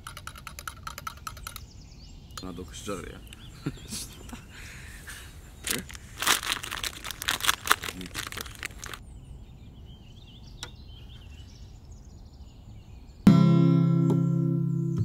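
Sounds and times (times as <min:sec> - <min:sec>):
faint bird chirps: 0:00.9 - 0:06.0, 0:09.0 - 0:13.3
plastic packet crinkling: 0:05.6 - 0:09.0.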